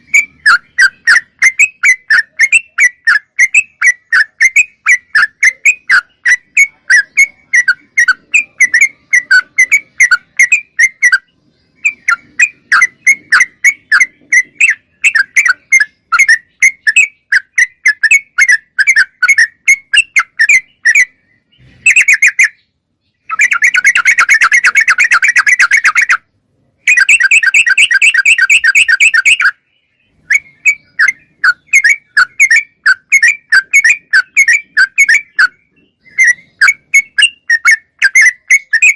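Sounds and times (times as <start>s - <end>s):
bird chattering trills: 0.0s - 38.9s
bird chirping: 0.0s - 38.9s.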